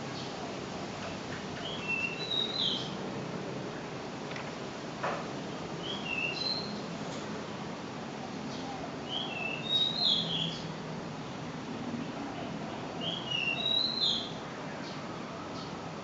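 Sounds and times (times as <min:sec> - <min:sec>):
bird whistling song: 0:01.6 - 0:03.0, 0:05.8 - 0:06.8, 0:09.1 - 0:10.7, 0:13.0 - 0:14.4.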